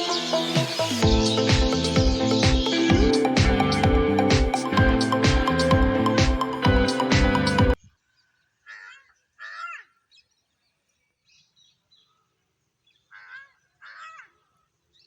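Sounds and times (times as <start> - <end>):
music: 0.0 - 7.8
bird screaming calls: 8.7 - 10.0.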